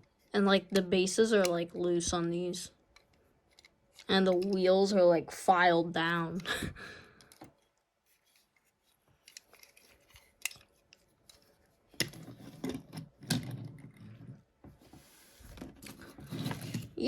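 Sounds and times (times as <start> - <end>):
scraping and rustling: 7.5 - 17.0.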